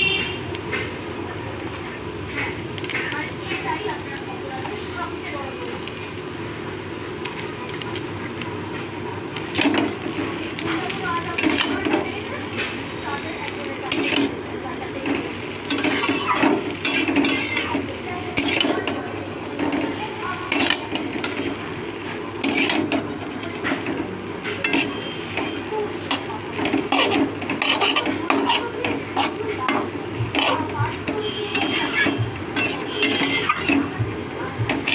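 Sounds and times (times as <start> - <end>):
food sizzling: 0.4 - 34.9
spatula scraping a pan: 9.4 - 34.0, 34.7 - 34.9.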